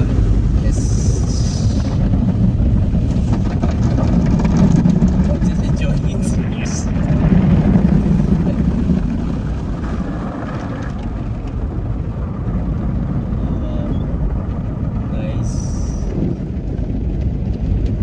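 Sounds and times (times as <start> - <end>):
car wash equipment rumbling: 0.0 - 18.0.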